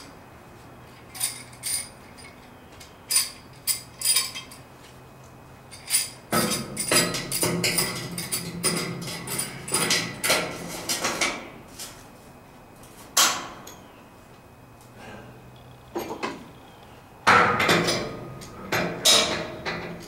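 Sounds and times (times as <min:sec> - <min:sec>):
knocks and clanks: 0:05.8 - 0:11.5, 0:15.9 - 0:16.5, 0:17.2 - 0:20.0.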